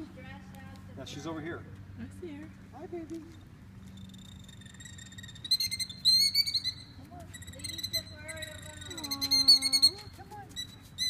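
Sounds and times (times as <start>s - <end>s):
killdeer alarm calls: 3.8s - 11.0s.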